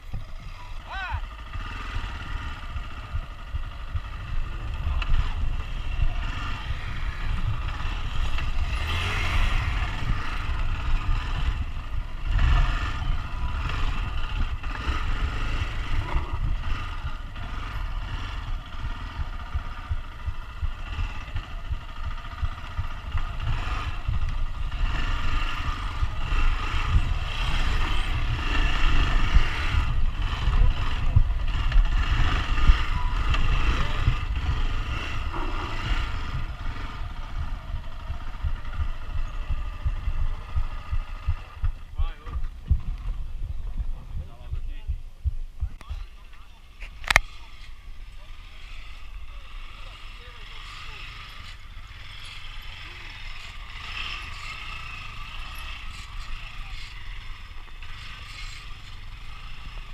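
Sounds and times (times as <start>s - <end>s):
heavy low rumble: 0.0s - 48.3s
motorcycle engines running: 0.0s - 59.9s.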